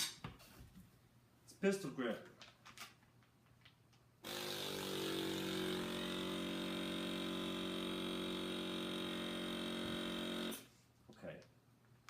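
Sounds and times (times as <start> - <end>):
vacuum sealer motor humming: 4.2 - 10.6.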